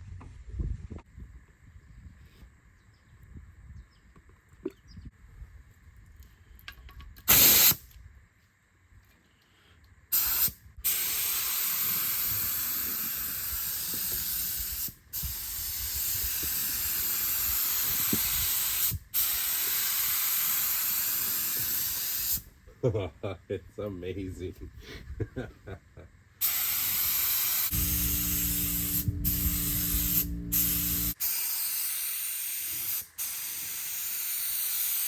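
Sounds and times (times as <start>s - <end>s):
paint spray gun hissing: 7.3s - 7.8s, 10.2s - 22.4s, 26.4s - 35.0s.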